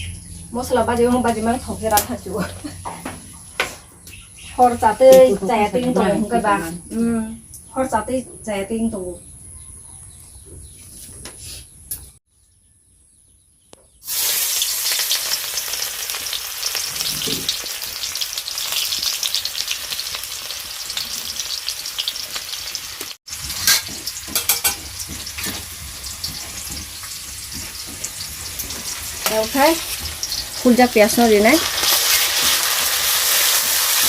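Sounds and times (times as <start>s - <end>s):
food sizzling in hot oil: 14.0s - 34.0s.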